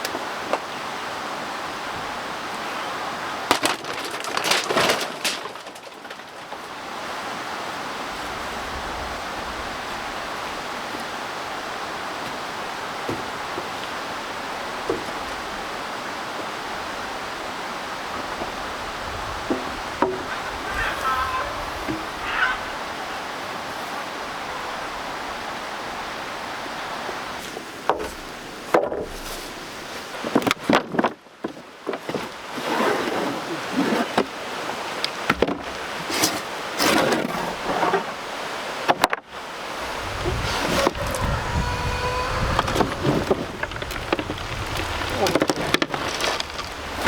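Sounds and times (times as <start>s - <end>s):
water rushing: 6.7s - 27.4s, 38.2s - 47.0s.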